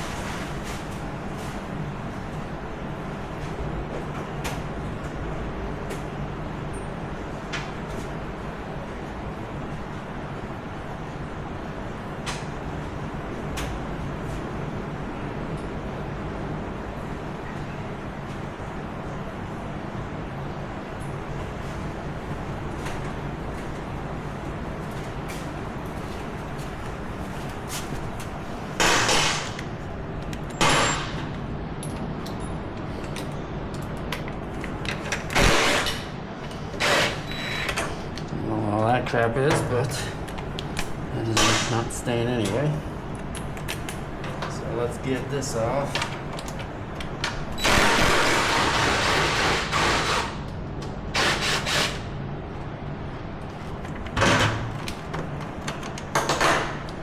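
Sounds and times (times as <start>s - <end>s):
steady low hum: 0.0s - 57.0s
power tool bursts: 35.4s - 36.0s, 36.8s - 37.7s, 47.6s - 50.4s, 51.1s - 52.0s.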